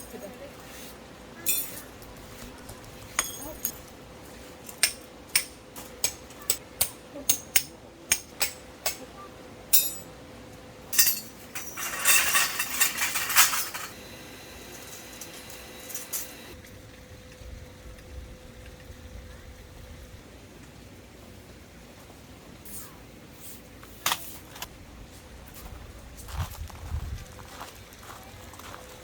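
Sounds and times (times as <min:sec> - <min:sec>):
scraping rustling noise: 0:00.2 - 0:01.0, 0:01.6 - 0:04.8
hammer striking metal tent peg: 0:04.8 - 0:09.0.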